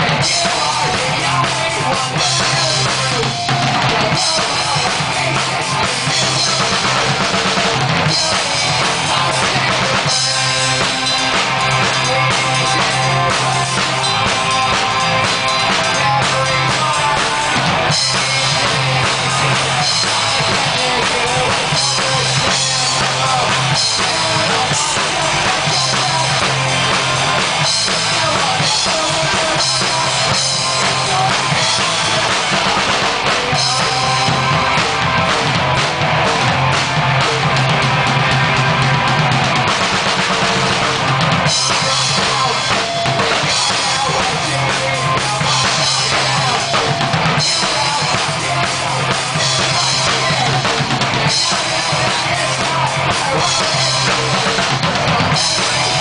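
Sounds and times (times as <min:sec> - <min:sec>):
drum kit: 0:00.0 - 0:56.0
rock band playing live: 0:00.0 - 0:56.0.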